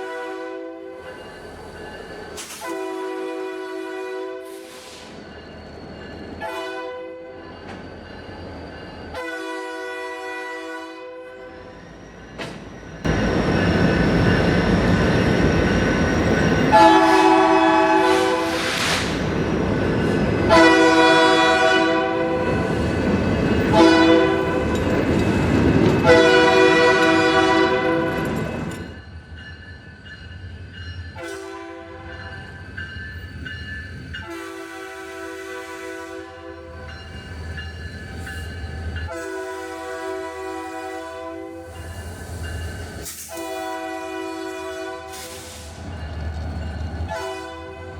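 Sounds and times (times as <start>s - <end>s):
locomotive horn blasts: 0.0s - 0.9s, 2.5s - 4.6s, 6.4s - 7.3s, 9.2s - 11.5s, 16.7s - 18.7s, 20.5s - 22.7s, 23.7s - 24.8s, 26.0s - 28.4s, 31.2s - 32.2s, 34.2s - 36.7s, 39.1s - 41.6s, 43.3s - 45.6s, 47.1s - 47.9s
diesel locomotives rumbling past: 0.0s - 47.9s.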